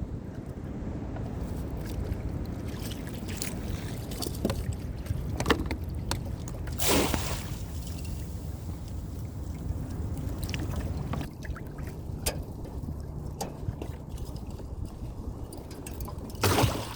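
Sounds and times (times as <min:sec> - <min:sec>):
wind rumble on microphone: 0:00.0 - 0:16.9
water splash: 0:06.7 - 0:11.9, 0:16.4 - 0:16.9
water slapping against kayak hull: 0:16.3 - 0:16.9.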